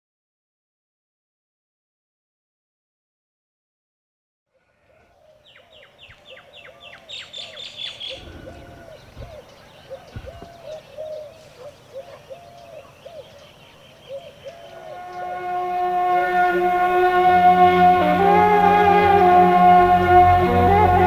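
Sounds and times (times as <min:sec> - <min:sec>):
bird repeating low arched call: 0:04.6 - 0:21.0
bird chirping high falling chirps: 0:05.4 - 0:15.3.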